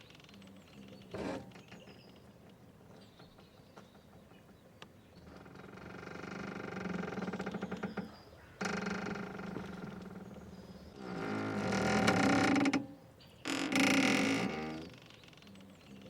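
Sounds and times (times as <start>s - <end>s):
rope creaking under strain: 5.3s - 15.2s.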